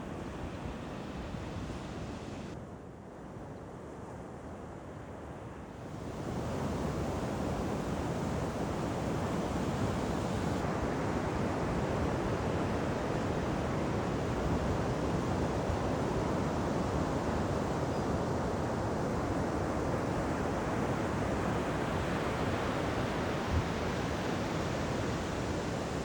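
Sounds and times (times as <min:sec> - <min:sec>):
ocean surf washing: 0:00.0 - 0:02.6, 0:05.9 - 0:17.0, 0:19.5 - 0:26.0.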